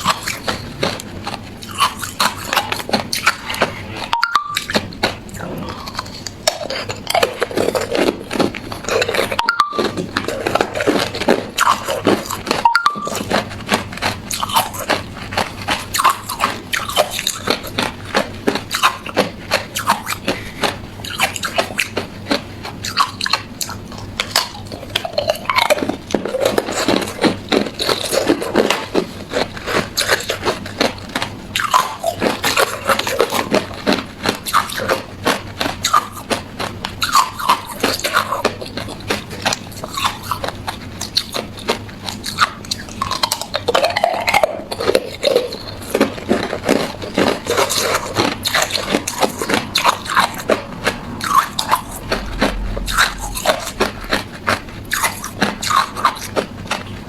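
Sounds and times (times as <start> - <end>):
ice being chewed crunching: 0.0 - 57.0.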